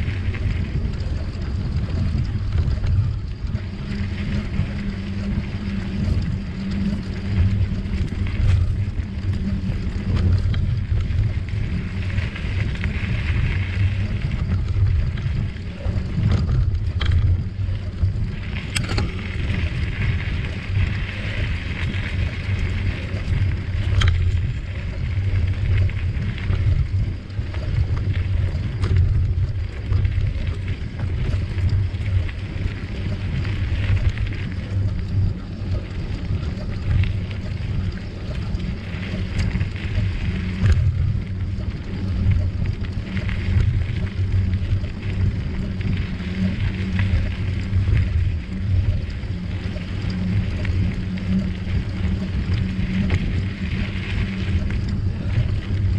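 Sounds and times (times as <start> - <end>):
bicycle clicks and rattles: 0.0 - 55.9
tyres rolling on trail: 0.0 - 55.9
wind on microphone: 0.0 - 55.9.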